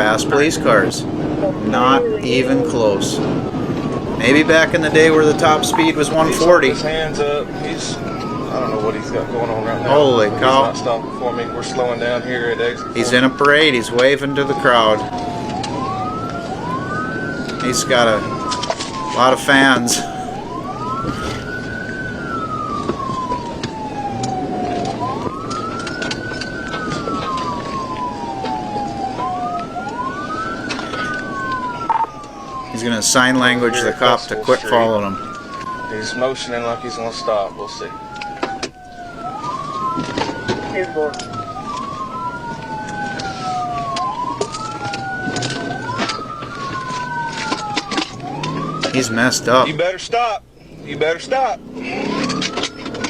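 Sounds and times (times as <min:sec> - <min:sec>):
police siren wailing: 0:00.0 - 0:53.0
road and engine noise: 0:00.0 - 0:53.0.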